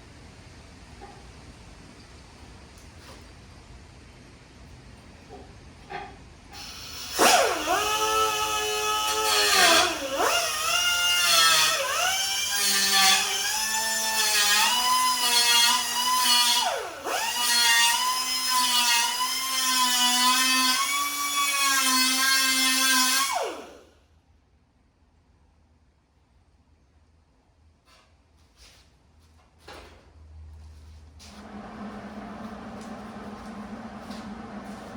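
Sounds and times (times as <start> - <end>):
die grinder whining: 6.6 - 23.8, 31.4 - 34.9.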